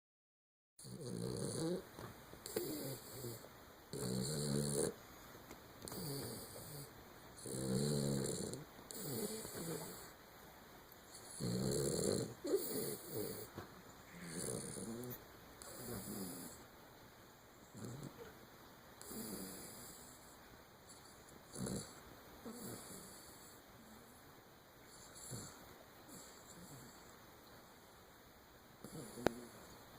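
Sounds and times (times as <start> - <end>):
dog snoring: 0.8 - 5.0, 5.8 - 10.2, 11.1 - 16.7, 17.6 - 18.4, 19.0 - 24.2, 24.9 - 27.1, 28.8 - 29.8.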